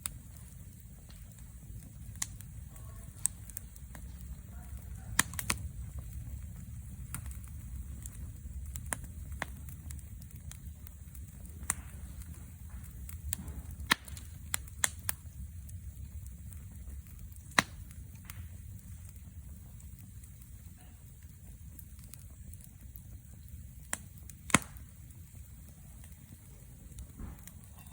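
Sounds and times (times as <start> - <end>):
low rumble: 0.0 - 27.9
wood fire crackling: 0.0 - 27.9.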